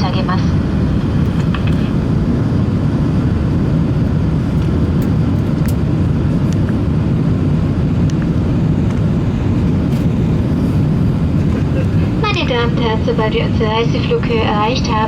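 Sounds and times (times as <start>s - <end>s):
aircraft cabin engine rumble: 0.0s - 15.0s
faint clicks in cabin: 8.0s - 9.1s.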